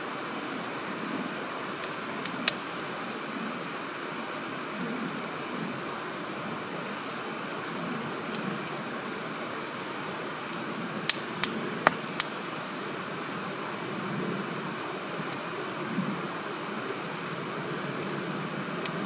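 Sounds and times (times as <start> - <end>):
campfire burning: 11.8 - 12.5, 15.2 - 19.0
burning wood popping: 11.9 - 12.3
background hiss: 15.2 - 19.0.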